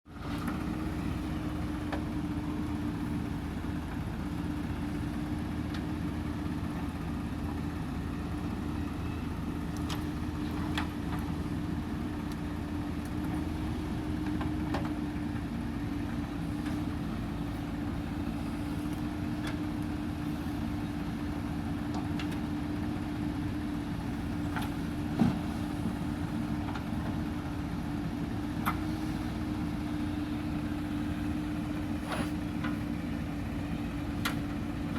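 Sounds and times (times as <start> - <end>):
heavy machinery diesel engine: 0.1 - 34.9.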